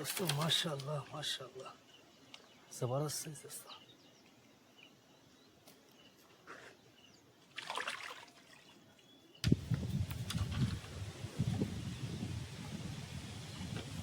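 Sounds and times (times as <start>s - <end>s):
water splashing and trickling: 7.4s - 14.0s.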